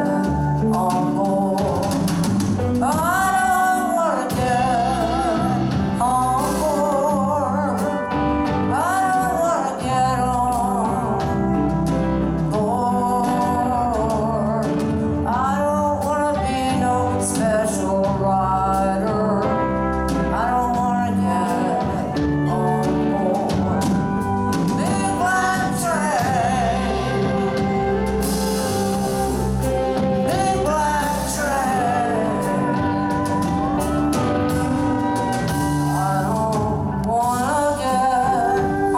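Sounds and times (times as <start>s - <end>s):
bass: 0.0s - 38.9s
drums with cymbals: 0.0s - 38.9s
lead guitar line bending: 0.0s - 38.9s.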